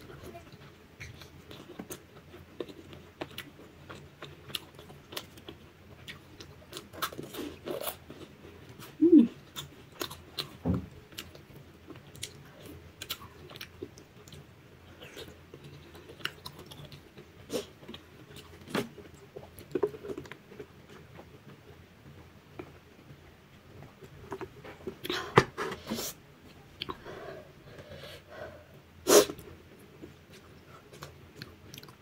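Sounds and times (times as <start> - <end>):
person chewing food: 0.2 - 21.6, 29.3 - 32.0.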